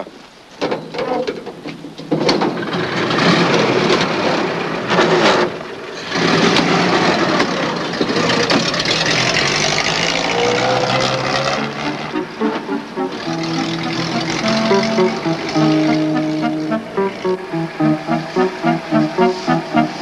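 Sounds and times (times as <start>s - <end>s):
car engine running: 8.6s - 19.8s.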